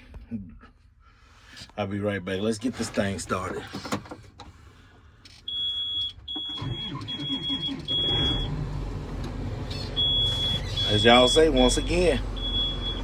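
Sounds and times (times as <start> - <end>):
diesel engine cranking and idling: 6.2 - 13.0
high warning beeps: 10.0 - 13.0.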